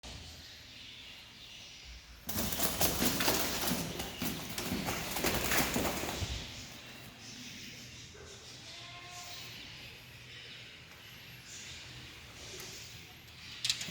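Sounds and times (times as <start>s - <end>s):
bird flapping wings: 2.3s - 6.5s.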